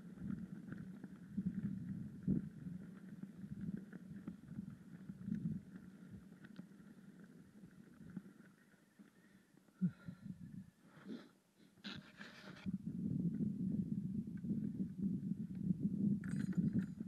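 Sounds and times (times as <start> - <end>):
bike tyre rumble on road: 0.0 - 9.4
bike rattles and clicks: 16.2 - 17.0.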